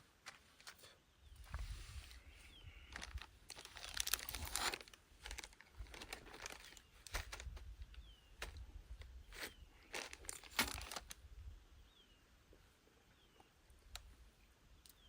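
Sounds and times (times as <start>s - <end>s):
material rustling and crinkling: 2.8s - 7.7s, 9.3s - 11.2s
light clicks and crunches: 2.8s - 11.2s.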